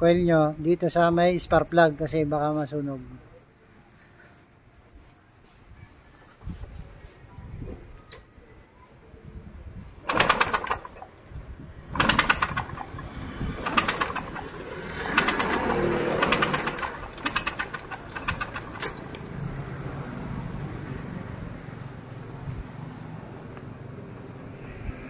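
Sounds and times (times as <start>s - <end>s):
scooter engine kick-started: 10.0s - 11.1s, 11.9s - 19.3s.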